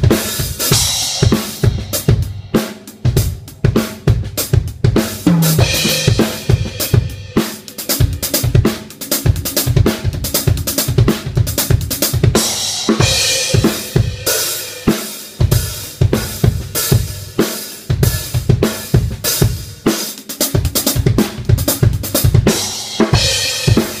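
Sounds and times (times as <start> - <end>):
drum kit played fast: 0.0 - 24.0
cymbal crashes: 5.4 - 9.8.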